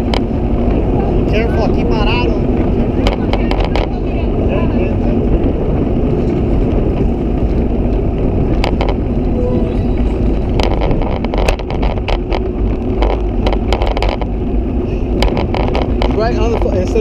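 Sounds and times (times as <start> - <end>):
bicycle road noise: 0.0 - 17.0
wind on microphone: 0.0 - 17.0
sharp clicks or rattles: 2.1 - 4.0, 6.6 - 9.3, 10.0 - 17.0.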